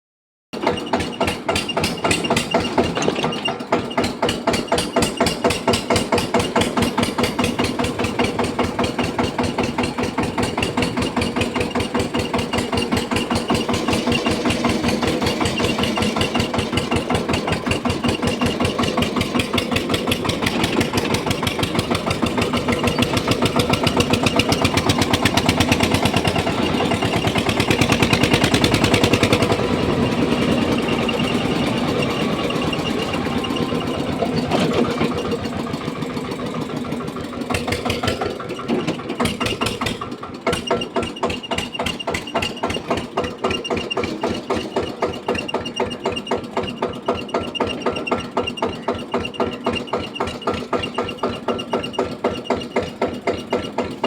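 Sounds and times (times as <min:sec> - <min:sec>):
tractor diesel engine running: 0:00.6 - 0:54.0.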